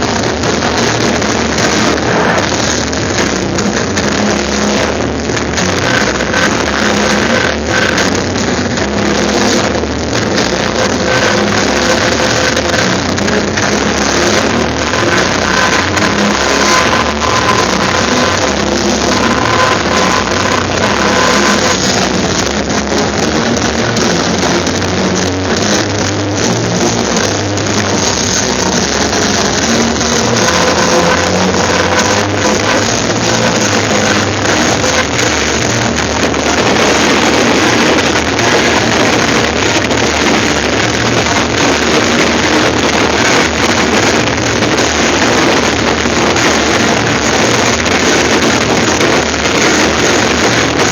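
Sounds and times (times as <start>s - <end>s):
loud steady rushing noise: 0.0s - 50.9s.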